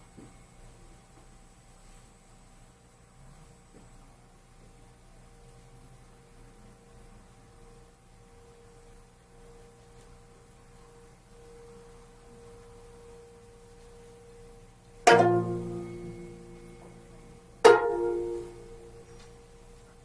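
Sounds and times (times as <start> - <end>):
plucked zither notes: 15.0 - 19.2.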